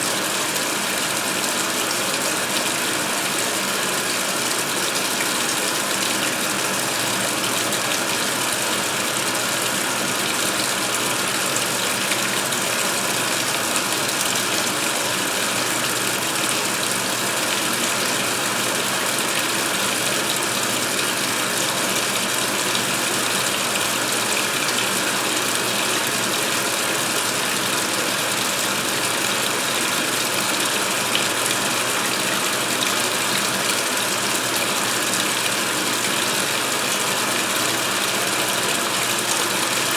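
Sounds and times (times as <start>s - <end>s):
water pouring into washer tub: 0.0s - 39.9s.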